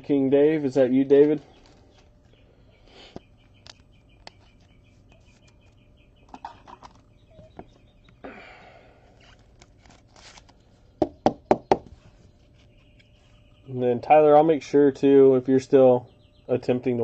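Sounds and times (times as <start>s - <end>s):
bird chirping: 0.0s - 9.4s, 10.8s - 17.0s.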